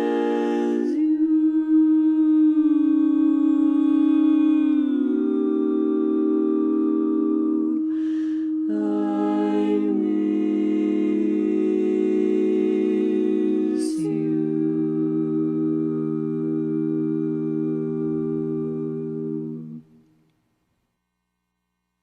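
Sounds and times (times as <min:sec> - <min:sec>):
a cappella group singing chords: 0:00.0 - 0:20.0
hissy breath break: 0:07.9 - 0:08.5.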